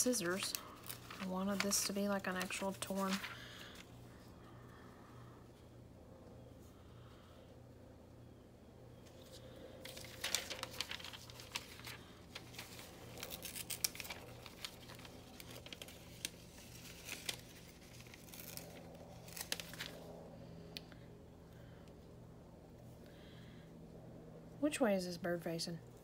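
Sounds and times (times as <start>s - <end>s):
paper being torn: 9.9s - 20.0s.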